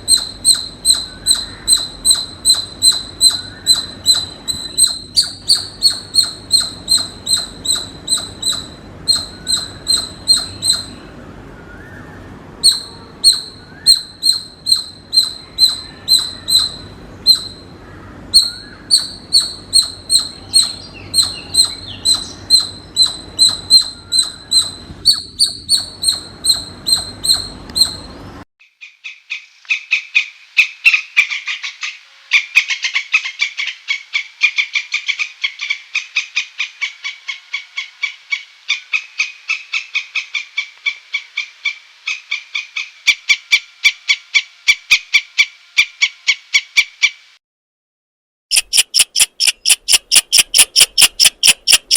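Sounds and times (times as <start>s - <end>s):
squirrel chirping and chattering: 0.0s - 11.0s, 12.6s - 17.7s, 18.3s - 28.1s, 48.5s - 51.9s.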